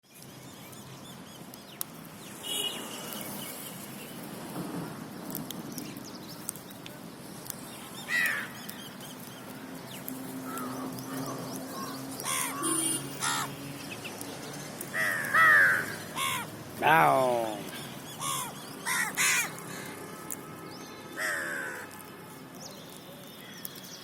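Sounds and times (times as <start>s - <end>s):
outdoor background noise: 0.0s - 24.0s
birds calling: 7.4s - 22.0s.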